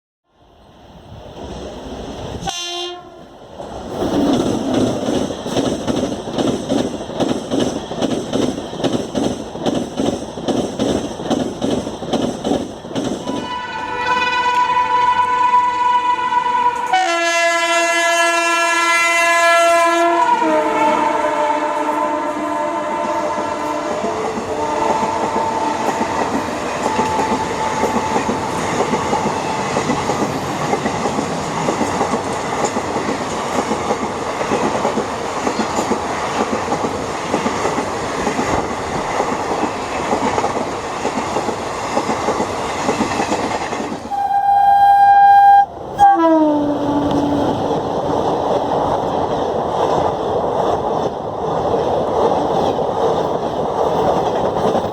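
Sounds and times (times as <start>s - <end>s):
train coaches rumbling past: 0.4s - 54.9s
locomotive horn: 2.4s - 3.3s, 13.3s - 28.2s, 44.1s - 47.6s.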